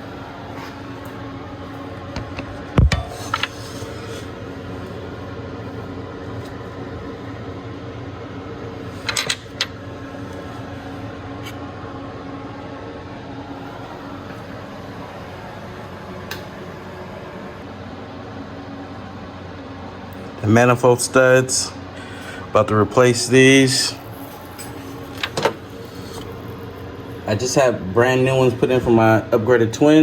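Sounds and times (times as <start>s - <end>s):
fan humming: 0.0s - 30.0s.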